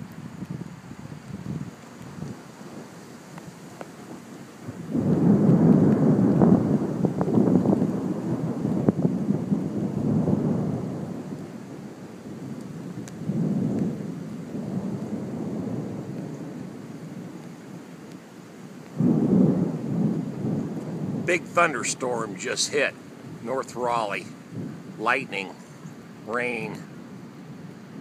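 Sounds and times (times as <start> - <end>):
wind buffeting microphone: 0.0 - 3.5, 4.1 - 17.6, 19.0 - 26.9
steady hiss: 0.0 - 28.0
thunder rumbling: 4.1 - 17.5, 19.0 - 25.6.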